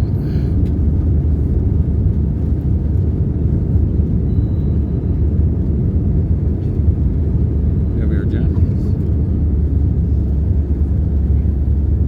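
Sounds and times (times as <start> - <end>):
airplane cabin engine rumble: 0.0 - 12.0.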